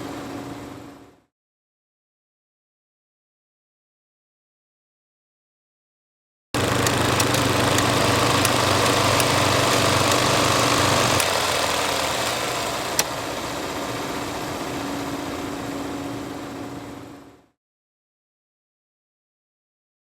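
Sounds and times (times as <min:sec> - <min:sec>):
projector clicks: 0:06.6 - 0:13.2
film projector whirring: 0:06.6 - 0:17.0.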